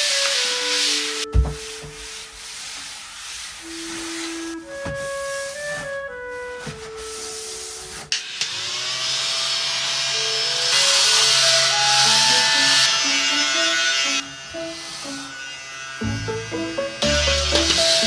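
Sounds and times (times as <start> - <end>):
light background music: 0.0 - 2.6, 3.6 - 8.2, 10.3 - 18.0
electric motor whirring: 8.2 - 18.0.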